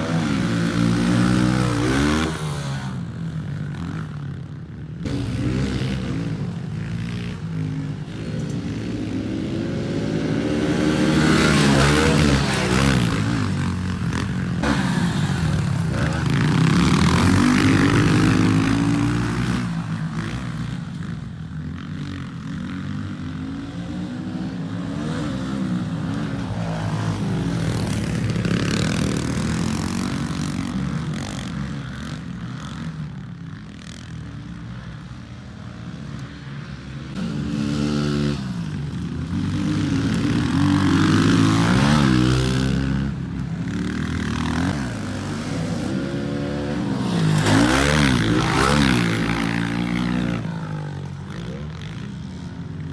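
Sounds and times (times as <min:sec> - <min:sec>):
motorbike engine revving: 0:05.1 - 0:20.9, 0:37.2 - 0:52.0.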